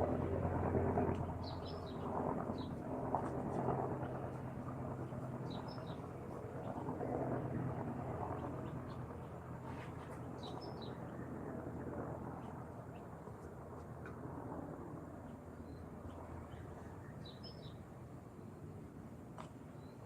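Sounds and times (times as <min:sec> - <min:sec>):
steady low hum: 0:00.0 - 0:19.4
small birds chirping: 0:01.4 - 0:02.8, 0:05.1 - 0:06.1, 0:10.1 - 0:11.2.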